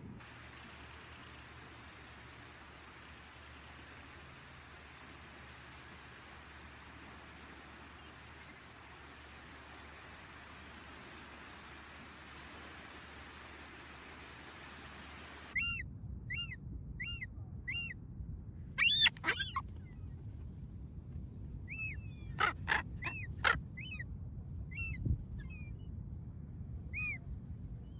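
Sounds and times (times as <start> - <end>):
gull calling: 18.8 - 19.6, 22.4 - 23.6.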